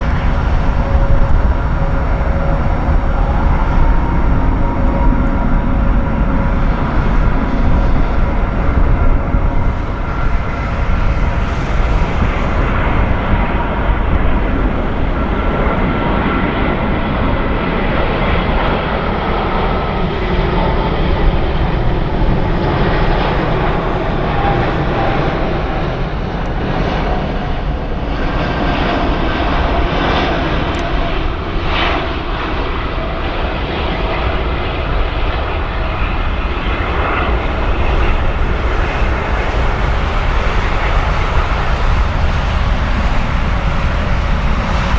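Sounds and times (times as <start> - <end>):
jet engines running: 0.0 - 44.9.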